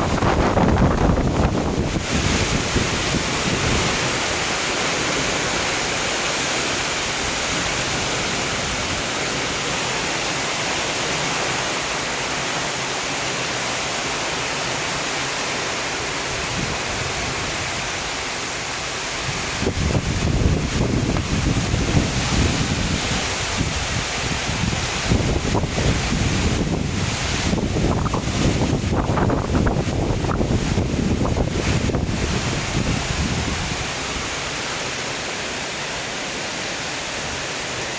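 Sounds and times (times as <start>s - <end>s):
strong wind rushing: 0.0s - 6.2s, 19.2s - 34.6s
wind buffeting microphone: 0.0s - 9.8s, 19.2s - 34.7s.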